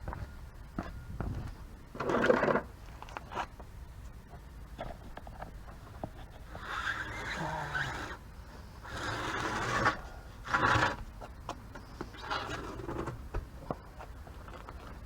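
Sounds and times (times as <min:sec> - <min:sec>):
rasping scrapes: 0:08.8 - 0:11.0.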